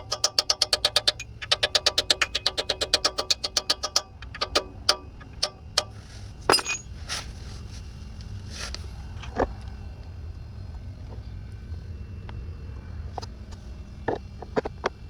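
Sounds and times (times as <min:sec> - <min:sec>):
ratchet clicking: 0:00.0 - 0:06.8
metal tool clinks: 0:06.5 - 0:07.0.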